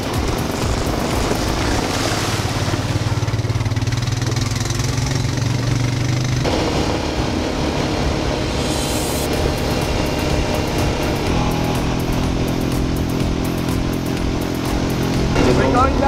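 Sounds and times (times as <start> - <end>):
quad engine running: 0.0 - 16.0
strong low hum: 4.8 - 16.0.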